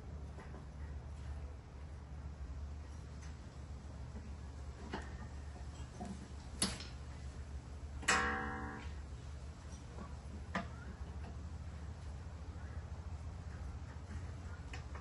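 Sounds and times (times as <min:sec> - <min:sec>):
loud ringing metallic clank: 0:08.1 - 0:08.9.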